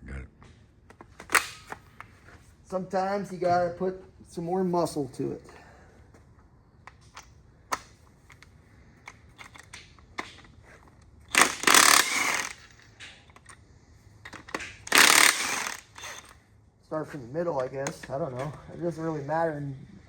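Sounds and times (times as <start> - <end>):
small metal clicks of tools: 6.8 - 11.1, 14.2 - 16.4
loud tool bursts: 11.3 - 13.2, 14.4 - 16.4.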